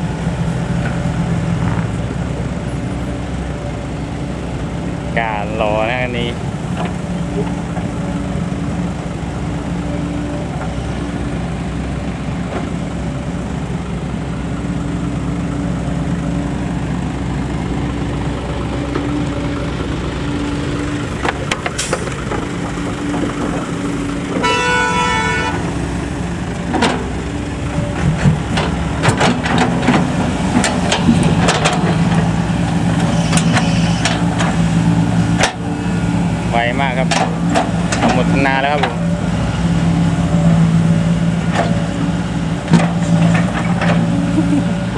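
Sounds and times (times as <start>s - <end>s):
diesel truck engines idling: 0.0s - 44.9s
truck horn blast: 24.4s - 25.7s, 33.1s - 34.1s
sharp clicks and knocks: 27.9s - 32.3s, 35.4s - 35.6s, 37.0s - 39.0s.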